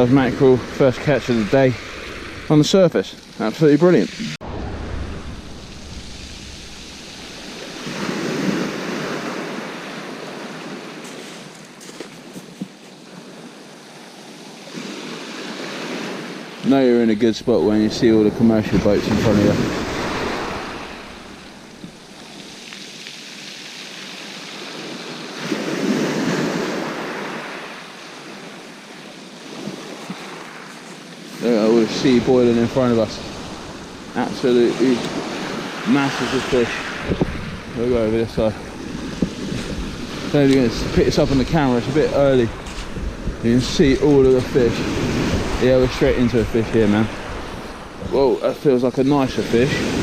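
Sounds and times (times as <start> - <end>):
sea waves breaking on beach: 0.0 - 50.0
wind on microphone: 4.1 - 11.0, 35.0 - 48.5.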